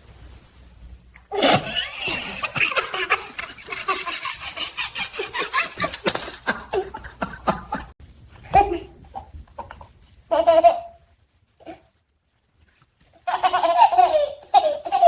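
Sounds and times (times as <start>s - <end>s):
rubbing and rustling: 0.0s - 15.0s
baby laughing and squealing: 1.3s - 7.0s, 13.3s - 15.0s.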